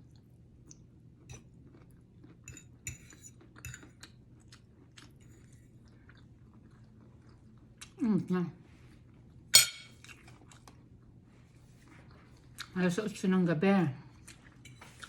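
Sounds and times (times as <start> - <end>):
person chewing food: 0.0 - 8.0, 9.0 - 12.8, 14.1 - 15.0.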